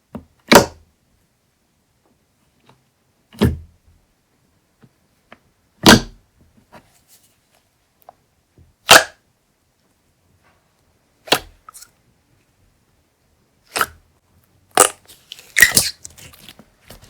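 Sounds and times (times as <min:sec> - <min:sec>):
slime squishing pops: 0:08.9 - 0:09.2.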